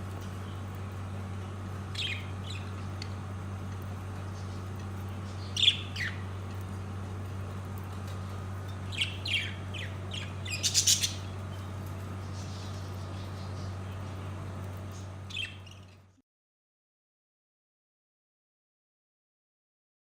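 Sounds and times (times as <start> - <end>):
parakeets chirping: 0.2 - 16.1.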